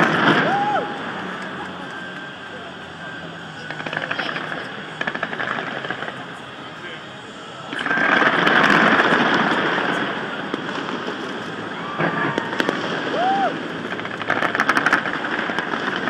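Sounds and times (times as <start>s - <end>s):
fireworks bursting: 0.0s - 6.8s, 7.6s - 16.0s
sharp crackling pops: 3.7s - 6.4s, 7.7s - 16.0s.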